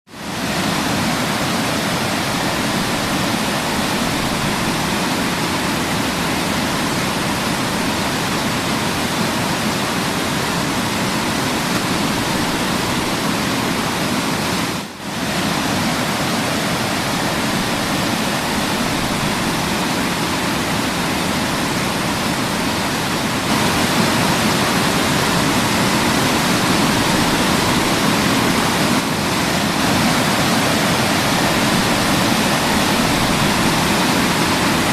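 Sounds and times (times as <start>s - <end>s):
waterfall roaring: 0.1s - 34.9s.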